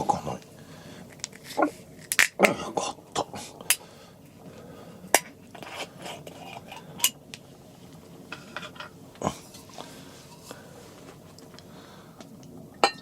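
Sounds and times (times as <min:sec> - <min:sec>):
dishes and utensils clinking: 0:08.3 - 0:10.5, 0:12.8 - 0:13.0.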